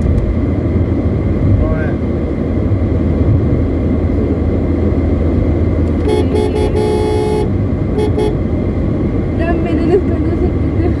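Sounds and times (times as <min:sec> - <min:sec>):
car road and engine noise: 0:00.0 - 0:11.0
car horn honking: 0:05.9 - 0:08.5.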